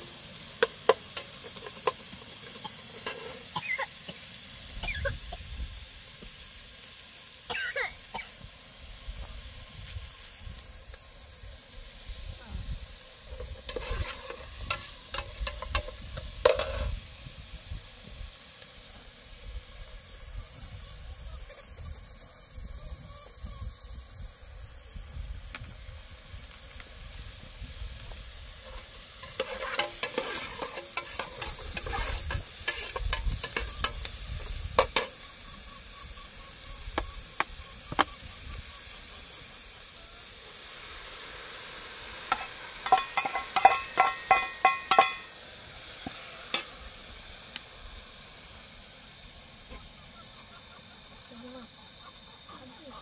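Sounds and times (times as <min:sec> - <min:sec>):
food sizzling in a pot: 0:00.0 - 0:53.0
ladle scraping a metal pot: 0:02.9 - 0:03.5, 0:13.3 - 0:16.9, 0:28.6 - 0:34.0, 0:42.3 - 0:45.3.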